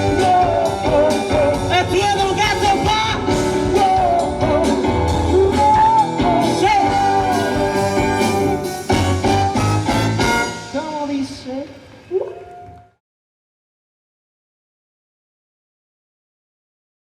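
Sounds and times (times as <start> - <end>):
person singing: 0.0 - 8.9
electric guitar: 0.0 - 10.7
drums: 0.0 - 13.0.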